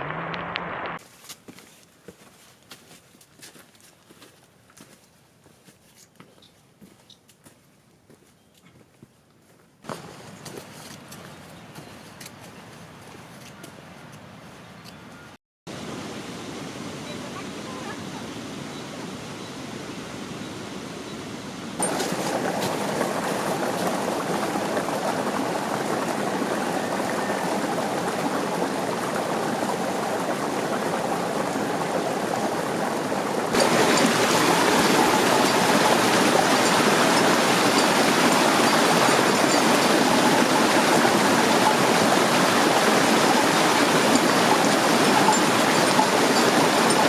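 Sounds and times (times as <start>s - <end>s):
rushing water: 9.9s - 12.0s, 15.7s - 47.0s.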